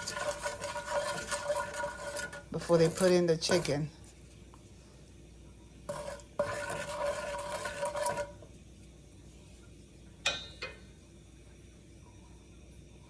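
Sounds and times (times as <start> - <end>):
spoon scraping metal pot: 0.0 - 3.9, 5.9 - 8.4
spoon tapping on pot: 10.2 - 10.8.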